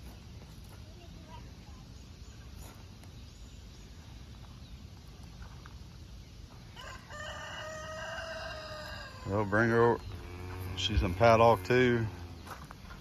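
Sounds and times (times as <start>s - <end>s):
rooster crowing: 6.8s - 9.5s.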